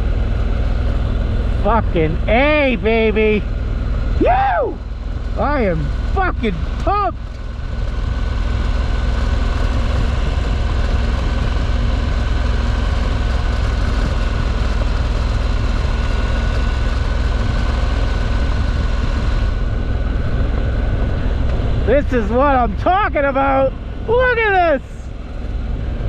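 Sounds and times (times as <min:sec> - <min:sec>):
motorcycle engine running: 0:00.0 - 0:26.0
wind rushing over microphone: 0:07.5 - 0:26.0.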